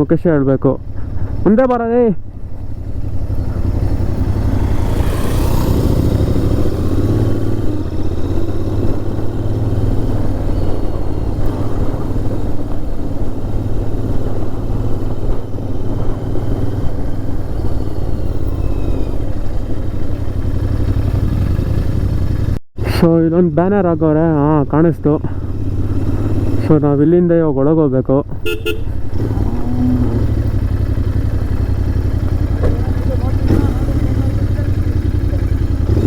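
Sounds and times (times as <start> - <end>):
motorcycle engine running: 0.8 - 22.6, 23.6 - 27.1, 28.4 - 36.0
wind rumble on microphone: 2.8 - 20.3.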